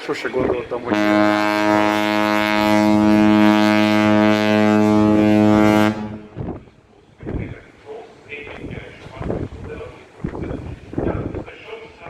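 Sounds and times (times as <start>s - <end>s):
ship horn long blast: 0.8s - 6.5s.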